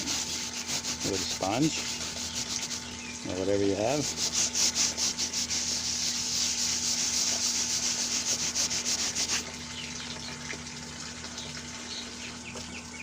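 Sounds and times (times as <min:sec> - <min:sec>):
sponge scrubbing hard surface: 0:00.0 - 0:02.9, 0:03.6 - 0:09.5.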